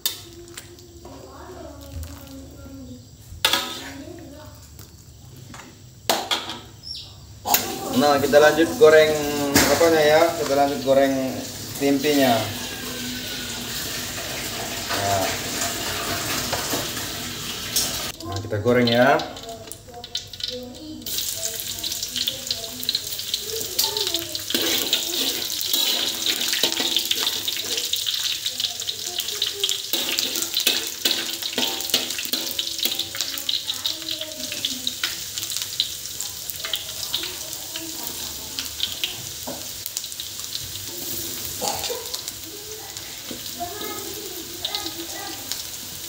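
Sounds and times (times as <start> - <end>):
food frying in hot oil: 0.0 - 46.0
spatula moving food in wok: 22.8 - 28.4.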